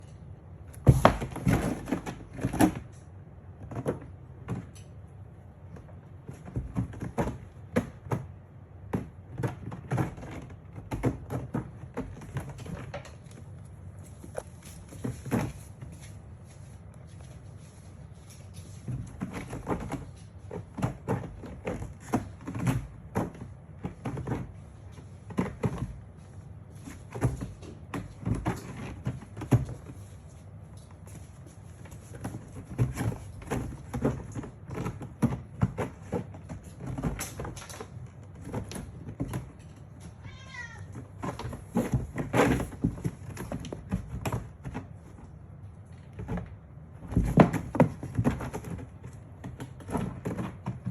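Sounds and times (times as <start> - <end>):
cat meowing: 40.1 - 41.0.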